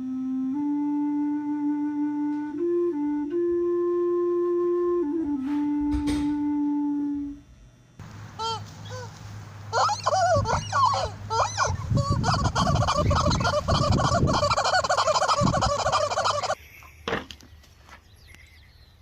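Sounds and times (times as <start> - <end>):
turkeys gobbling: 8.4 - 16.6.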